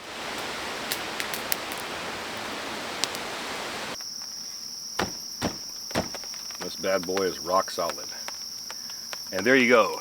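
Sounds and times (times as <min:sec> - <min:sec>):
insects droning: 0:00.0 - 0:10.0
steady hiss: 0:00.0 - 0:10.0
thumps: 0:05.0 - 0:07.4.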